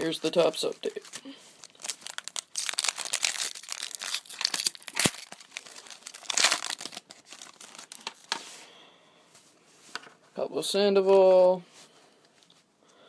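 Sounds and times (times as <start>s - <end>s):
foil wrapper crackling: 0.8s - 8.3s.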